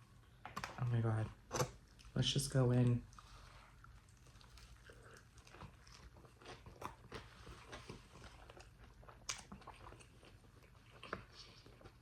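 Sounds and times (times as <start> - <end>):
crunchy chewing of fried food: 3.0 - 12.0.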